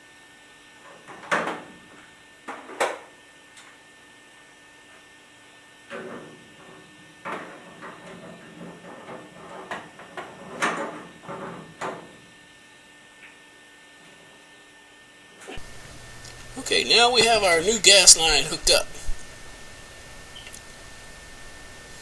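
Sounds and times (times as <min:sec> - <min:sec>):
steady hum: 0:15.6 - 0:22.0.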